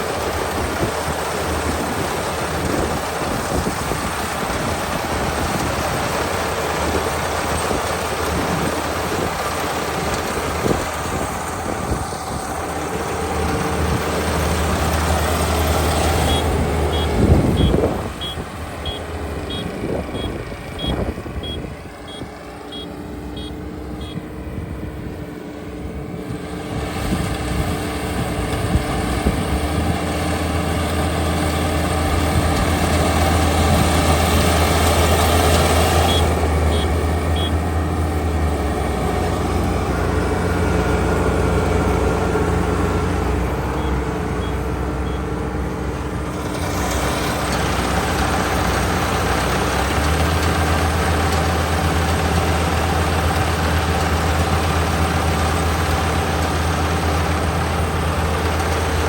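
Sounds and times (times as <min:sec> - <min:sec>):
combine harvester engine running: 0:00.0 - 0:59.0
high electronic beeps: 0:16.2 - 0:24.2.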